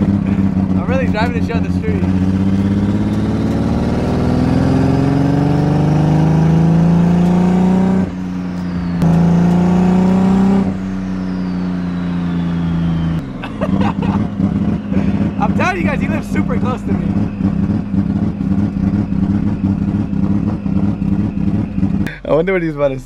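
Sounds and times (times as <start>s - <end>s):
car engine accelerating: 0.0s - 23.0s
faint turbo whistle: 8.0s - 9.1s, 9.8s - 13.4s, 14.8s - 22.0s.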